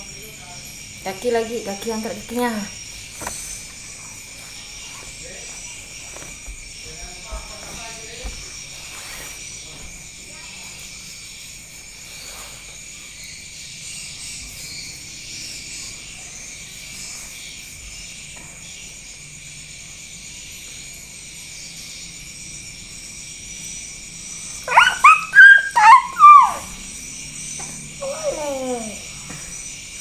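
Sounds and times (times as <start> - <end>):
small dog yipping: 24.6 - 26.8, 28.0 - 29.0.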